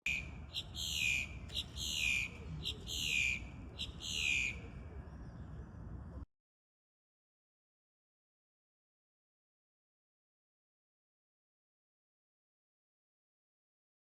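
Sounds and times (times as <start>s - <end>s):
bird calling: 0.0s - 5.2s.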